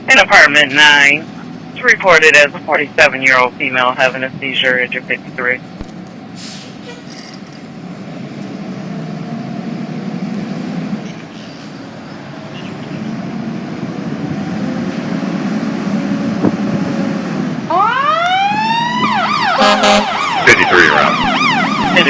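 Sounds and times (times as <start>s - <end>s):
fire engine diesel engine pulling away: 6.3s - 22.0s.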